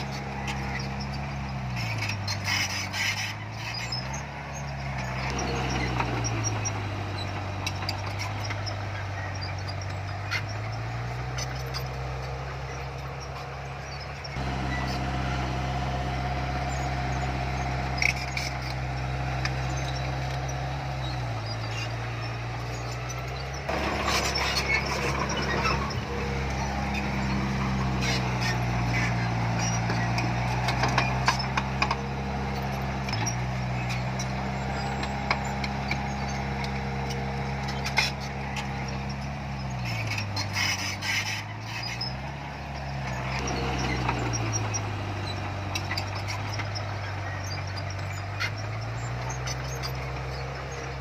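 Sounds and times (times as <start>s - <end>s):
heavy diesel engine running: 0.0s - 51.0s.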